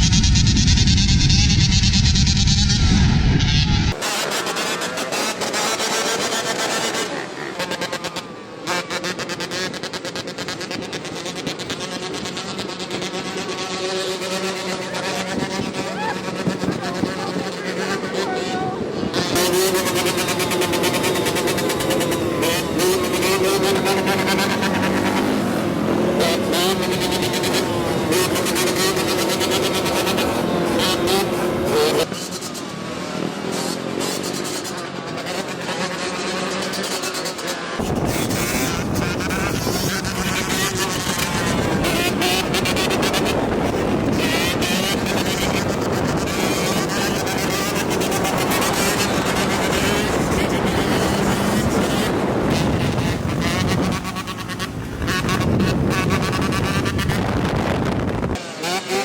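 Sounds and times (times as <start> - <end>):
wind buffeting microphone: 0.0 - 4.0, 18.5 - 31.8, 37.8 - 58.4
dirt bike engine revving: 0.0 - 59.0.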